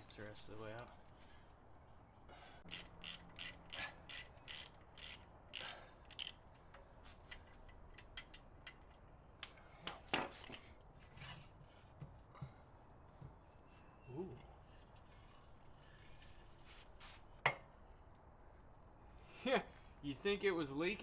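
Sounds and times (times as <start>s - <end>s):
socket ratchet clicking: 2.7s - 6.4s.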